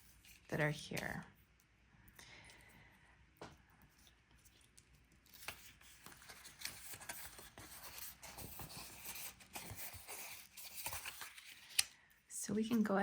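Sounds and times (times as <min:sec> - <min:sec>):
cardstock rustling and scraping: 0:04.0 - 0:11.9.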